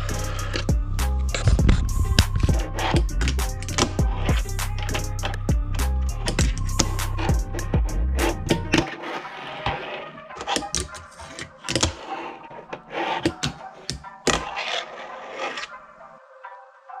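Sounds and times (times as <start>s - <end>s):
music with percussive beat: 0.0s - 8.7s.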